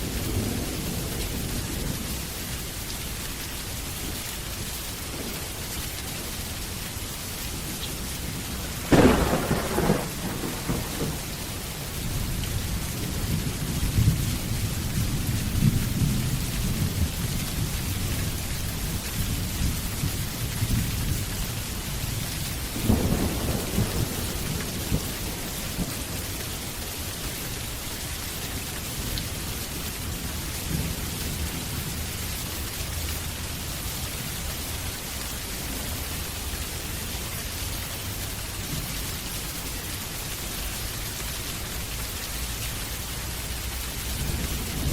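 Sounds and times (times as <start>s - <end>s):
heavy rain: 0.0s - 44.9s
rolling thunder: 7.6s - 21.4s, 22.0s - 26.4s, 44.0s - 44.9s.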